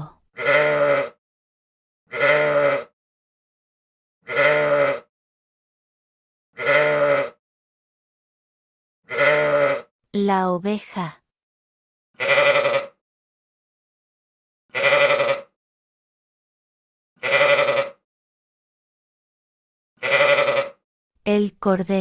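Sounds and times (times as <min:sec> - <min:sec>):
ram bleating: 0:00.0 - 0:01.2, 0:02.1 - 0:02.9, 0:04.2 - 0:05.1, 0:06.6 - 0:07.4, 0:09.1 - 0:09.9, 0:12.2 - 0:13.0, 0:14.7 - 0:15.5, 0:17.2 - 0:18.0, 0:20.0 - 0:20.8.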